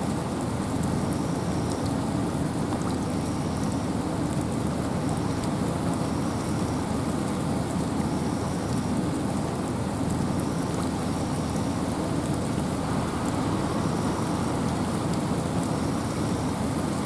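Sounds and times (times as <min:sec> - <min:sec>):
rain and wind in forest: 0:00.0 - 0:17.0
raindrop ticks: 0:00.4 - 0:02.0, 0:10.0 - 0:16.9.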